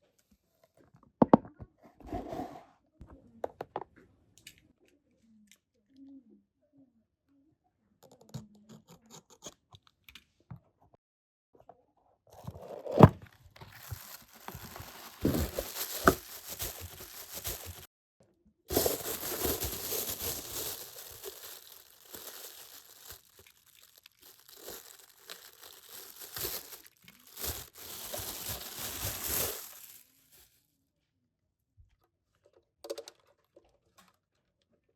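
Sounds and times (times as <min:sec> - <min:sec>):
plastic packaging tearing and crinkling: 0:12.9 - 0:17.9, 0:18.7 - 0:30.5.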